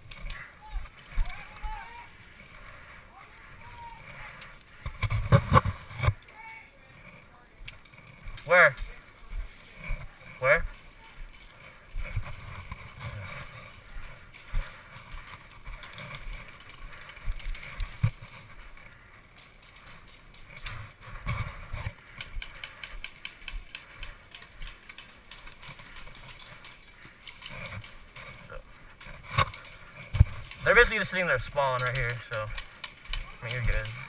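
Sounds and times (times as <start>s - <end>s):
handling knocks and rattles: 7.7s - 34.0s.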